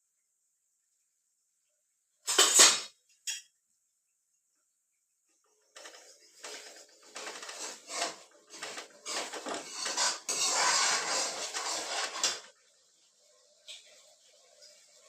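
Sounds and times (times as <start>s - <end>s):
metal utensils scraping a pot: 5.8s - 12.6s.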